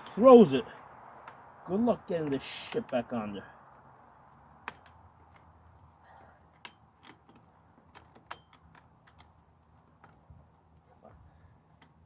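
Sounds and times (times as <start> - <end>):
saw chain links clicking: 0.0 - 0.5, 6.5 - 10.3.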